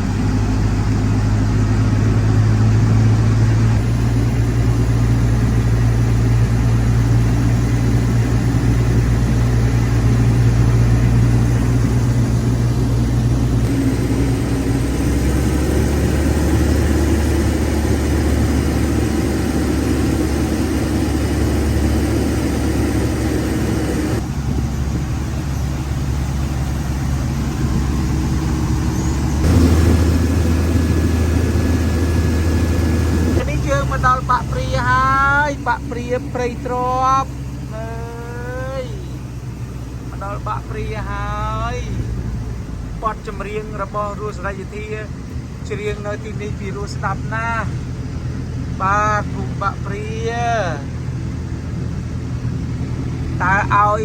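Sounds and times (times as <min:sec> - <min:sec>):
boat engine droning: 0:00.0 - 0:54.0
wind noise: 0:01.9 - 0:33.7.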